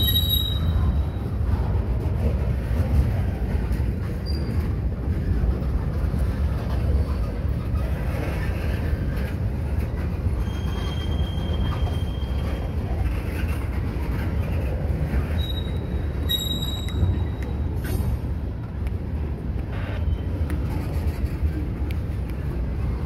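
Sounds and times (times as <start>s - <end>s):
high wheel squeal: 0.0s - 1.2s, 10.3s - 12.8s, 15.2s - 18.0s
steel wheels rumbling on rail: 0.0s - 23.0s.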